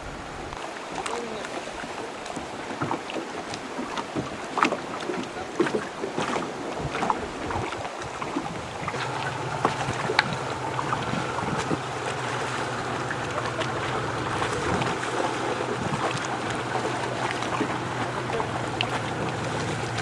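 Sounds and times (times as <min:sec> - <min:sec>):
water splashing and lapping: 0:00.0 - 0:20.0
low steady hum: 0:06.3 - 0:20.0.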